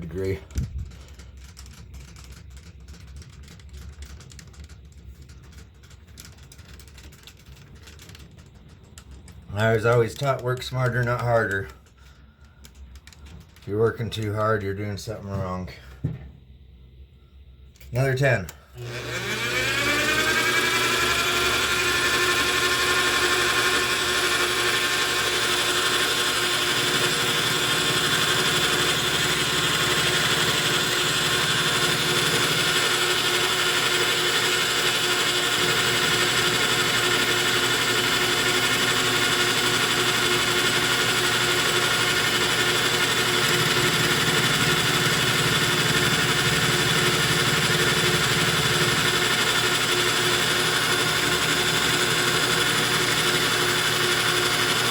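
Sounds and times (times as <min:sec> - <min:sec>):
lathe motor whine: 0:18.8 - 0:54.9.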